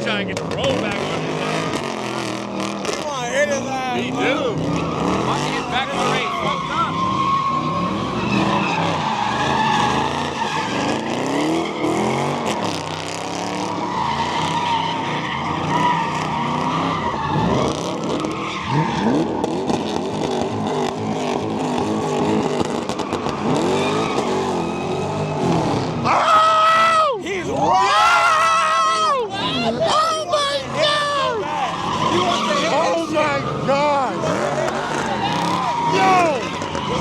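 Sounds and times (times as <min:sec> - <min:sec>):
car engines revving: 0:00.0 - 0:37.0
tyres squealing: 0:00.6 - 0:19.3, 0:23.0 - 0:37.0.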